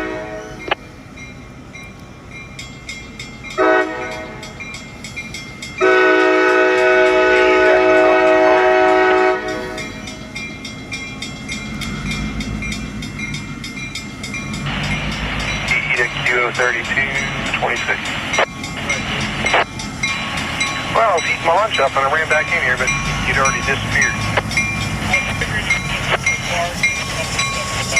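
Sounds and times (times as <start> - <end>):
locomotive air horn: 0.0 - 0.6, 3.6 - 4.4, 5.8 - 9.9
low diesel rumble: 11.5 - 27.9.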